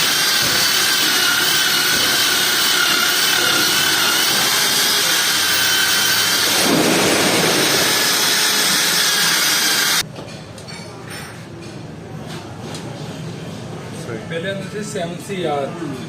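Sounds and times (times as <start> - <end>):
power tool hissing and whining: 0.0 - 10.0.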